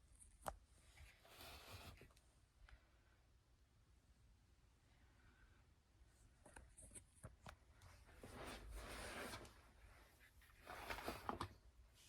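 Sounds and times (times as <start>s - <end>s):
soft rustling: 7.7s - 12.0s.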